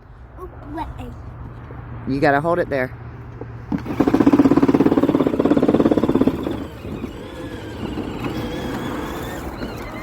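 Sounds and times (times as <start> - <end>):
toy tractor motor rattling: 3.7 - 10.0.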